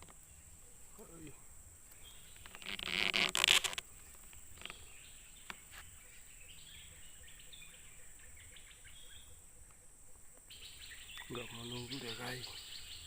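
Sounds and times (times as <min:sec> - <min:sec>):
birds chirping: 0:00.0 - 0:13.0
faint insects: 0:00.0 - 0:13.0
loud rustling: 0:02.4 - 0:04.3.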